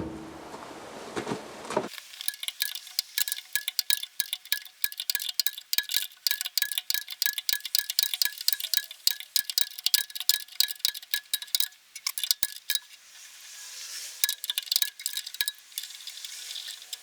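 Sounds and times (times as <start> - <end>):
socket ratchet clicking: 2.0 - 12.8, 14.2 - 16.0.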